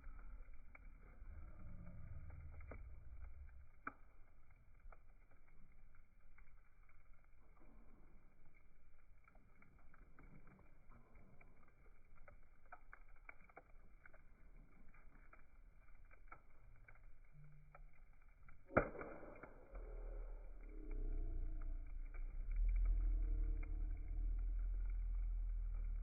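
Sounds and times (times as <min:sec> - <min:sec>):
campfire crackling and popping: 0:00.0 - 0:26.0
loud sharp fire snap: 0:18.6 - 0:20.4.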